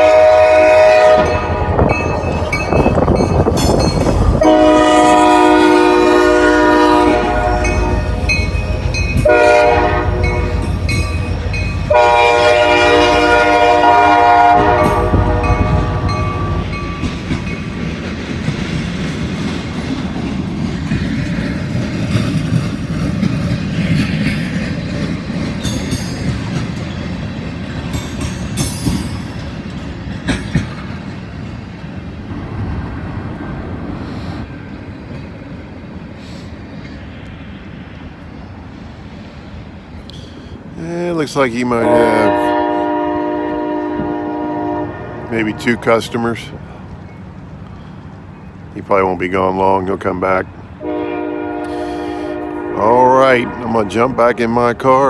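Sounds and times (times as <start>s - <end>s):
locomotive air horn blasts: 0.0s - 2.2s, 4.3s - 16.8s, 41.8s - 46.5s, 50.8s - 54.0s
train wheels clacking over rail joints: 1.1s - 14.0s, 14.6s - 32.0s.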